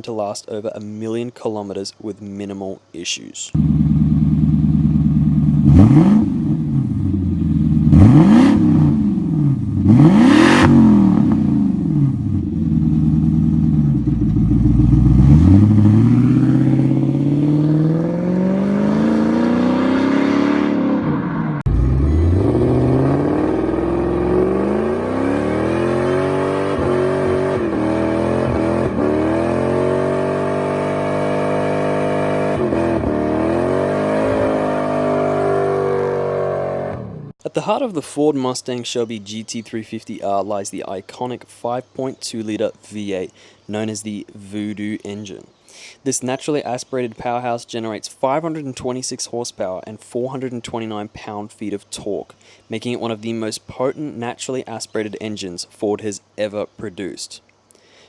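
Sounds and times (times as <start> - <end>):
car engine revving: 3.6 - 37.4.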